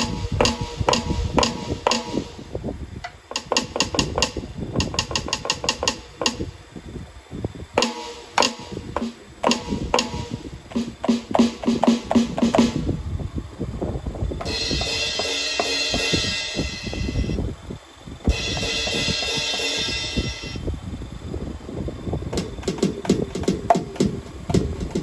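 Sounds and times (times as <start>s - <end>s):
electronic drum kit groove: 0.0s - 2.5s, 3.1s - 6.6s, 7.8s - 13.0s, 14.4s - 17.4s, 18.3s - 20.6s, 22.2s - 25.0s.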